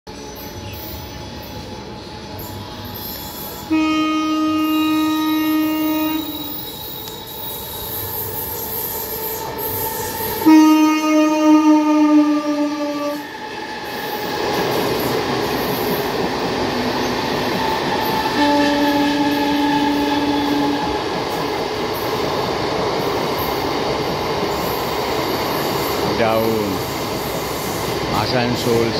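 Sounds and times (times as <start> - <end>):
locomotive horn: 3.7 - 6.6, 10.4 - 13.3, 18.3 - 20.9.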